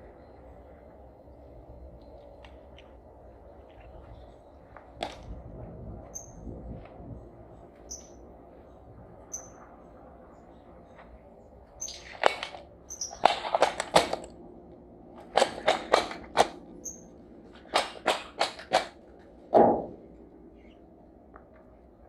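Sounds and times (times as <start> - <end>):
sharp knocks and clatters: 17.7 - 20.0.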